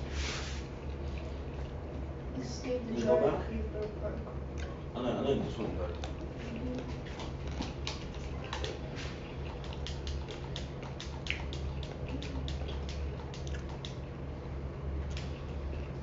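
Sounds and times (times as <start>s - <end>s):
steady low hum: 0.0s - 16.0s
wet chewing mouth sounds: 5.8s - 14.2s, 15.0s - 16.0s.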